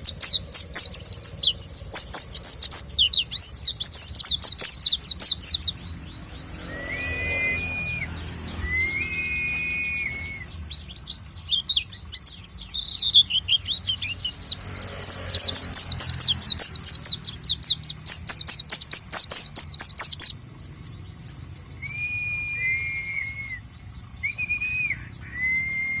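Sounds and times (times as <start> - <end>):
bird twittering song: 0.0 - 26.0
long flat whistled notes: 6.3 - 10.6.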